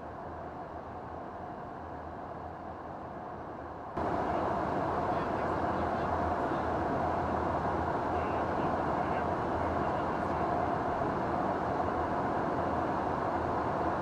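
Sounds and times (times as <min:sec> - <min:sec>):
aircraft engines droning: 0:04.0 - 0:14.0.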